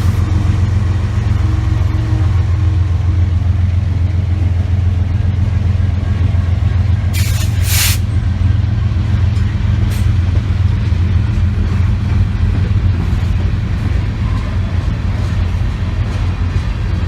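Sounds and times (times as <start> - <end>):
train rumbling: 0.0 - 17.0
brief hiss: 7.2 - 8.0.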